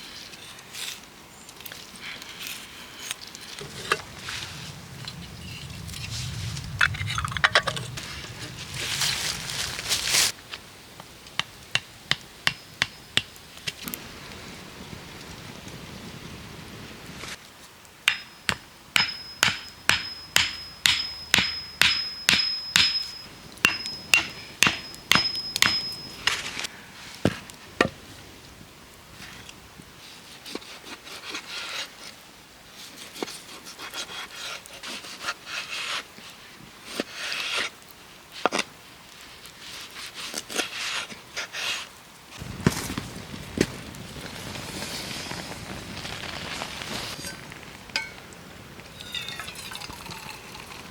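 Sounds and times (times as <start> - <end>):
hand tool striking wood: 18.1 - 26.6
high metallic ring: 18.1 - 26.6.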